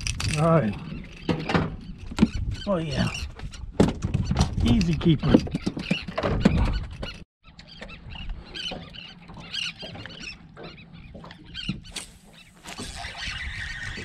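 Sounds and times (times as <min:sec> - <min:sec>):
birds squeaky chirps: 0:00.6 - 0:14.0.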